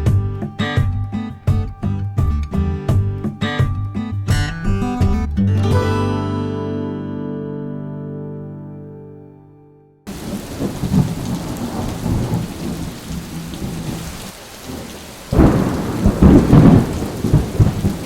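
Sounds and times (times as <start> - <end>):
acoustic guitar music: 0.0 - 10.1
gusting wind: 10.1 - 18.0
heavy rain: 10.1 - 18.0
low rumble of thunder: 10.1 - 18.0.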